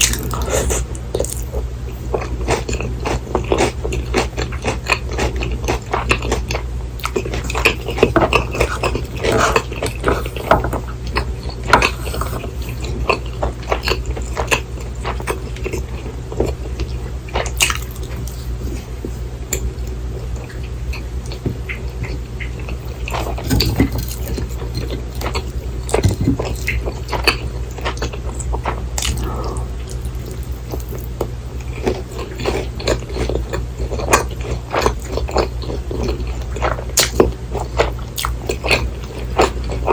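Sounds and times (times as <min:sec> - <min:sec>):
chewing: 0:00.0 - 0:39.9
low hum: 0:28.2 - 0:32.4.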